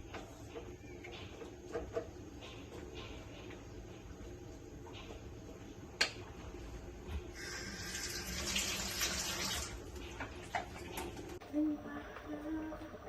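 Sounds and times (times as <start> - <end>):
tap water running into sink: 7.4 - 9.8.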